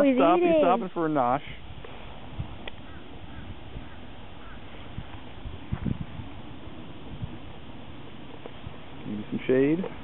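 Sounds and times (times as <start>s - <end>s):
outdoor background noise: 0.0s - 10.0s
distant bird calls: 2.6s - 9.0s.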